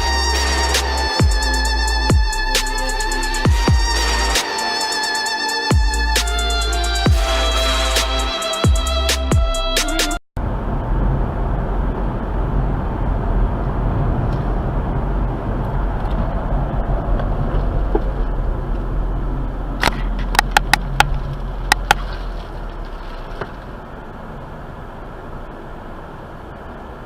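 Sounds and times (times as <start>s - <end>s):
car road and engine rumble: 0.0s - 27.0s
sharp clicks or knocks: 19.8s - 22.0s.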